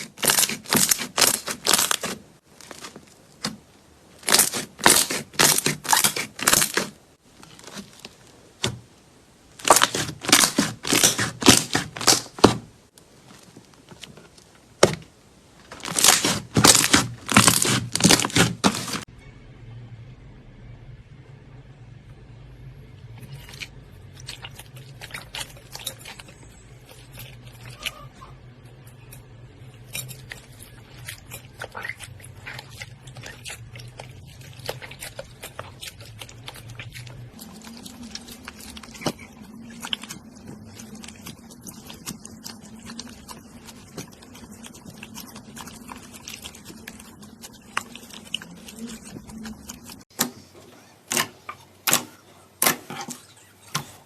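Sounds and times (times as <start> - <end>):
slime squished by hand: 9.6 - 12.7, 15.7 - 19.0.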